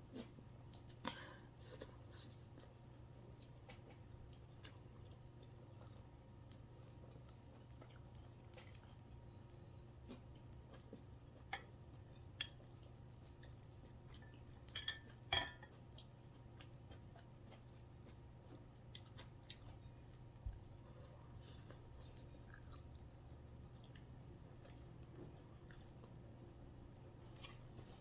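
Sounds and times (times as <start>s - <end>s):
low steady hum: 0.0s - 28.0s
person chewing: 3.4s - 26.3s.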